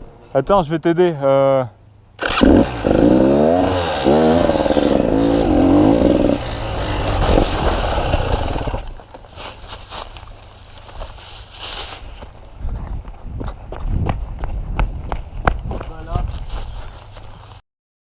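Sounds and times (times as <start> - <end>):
motorcycle engine revving: 2.2 - 9.0.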